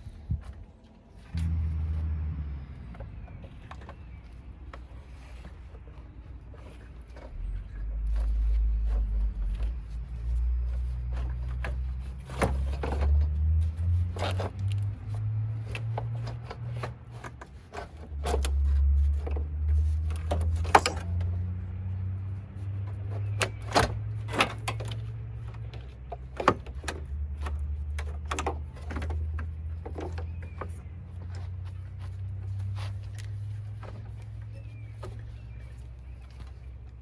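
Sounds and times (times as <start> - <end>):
low hum: 0.0 - 17.0
tools and parts clicking: 20.0 - 21.3.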